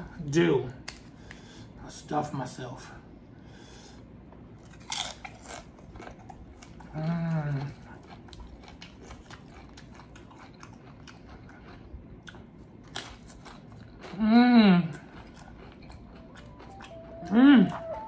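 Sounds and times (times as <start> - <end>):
person chewing food: 4.0 - 18.0
hummed mmm: 6.8 - 7.9, 14.0 - 18.0.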